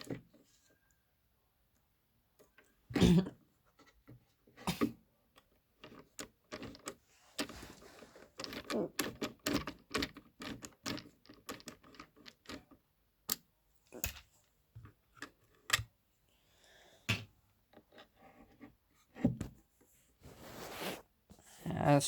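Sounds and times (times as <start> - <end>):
tools clicking and knocking: 5.4 - 15.9.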